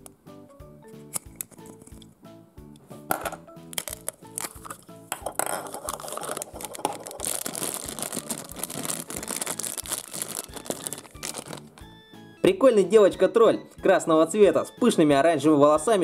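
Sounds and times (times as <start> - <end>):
background music with steady beat: 0.0 - 16.0
plastic capsule clicks and taps: 1.1 - 2.1, 3.1 - 9.3
plastic bag crinkling: 3.8 - 11.8.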